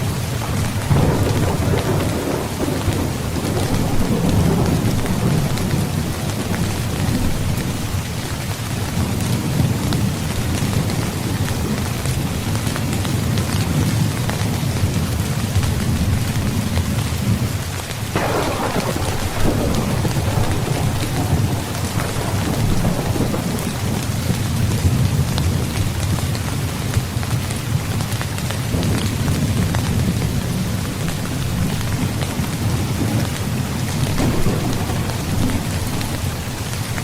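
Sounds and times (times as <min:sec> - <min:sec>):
thunder rumbling: 0:00.0 - 0:17.5, 0:18.1 - 0:37.0
heavy rain: 0:00.0 - 0:37.0
sharp thunderclap: 0:00.8 - 0:08.0, 0:18.1 - 0:26.2, 0:28.7 - 0:37.0.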